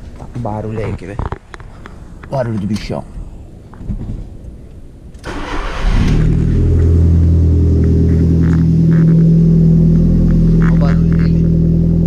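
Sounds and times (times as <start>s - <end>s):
car engine starting and idling: 5.1s - 12.0s.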